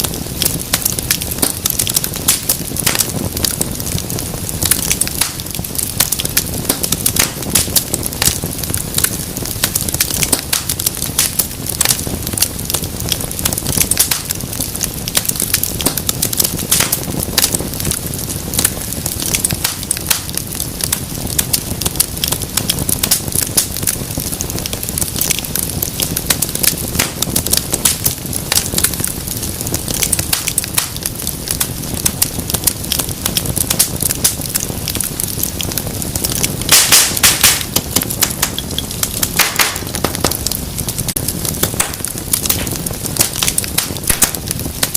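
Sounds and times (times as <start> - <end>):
fire rumbling and hissing: 0.0 - 44.9
wood crackling and popping: 0.0 - 44.9.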